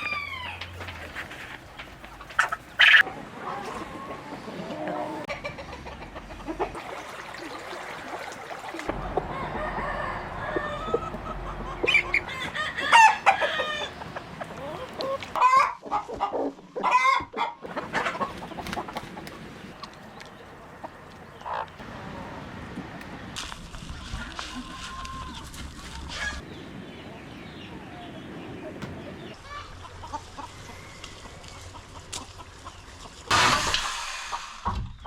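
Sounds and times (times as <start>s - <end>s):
chickens clucking: 0.0s - 7.4s, 8.9s - 21.8s, 27.1s - 35.0s
rooster crowing: 9.0s - 11.3s.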